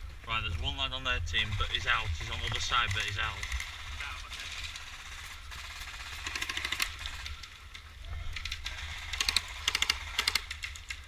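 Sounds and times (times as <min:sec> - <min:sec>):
airsoft gun firing bursts: 0:01.4 - 0:07.6, 0:08.5 - 0:11.0.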